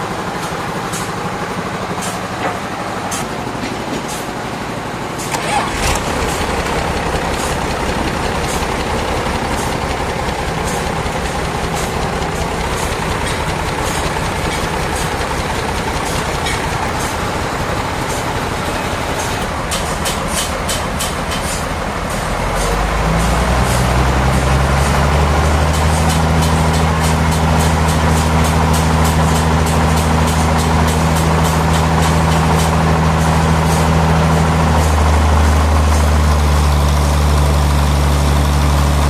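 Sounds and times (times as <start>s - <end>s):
deep steady engine hum: 0.0s - 39.0s
sawmill machinery running: 0.0s - 39.0s
sharp clicks and knocks: 5.2s - 21.7s.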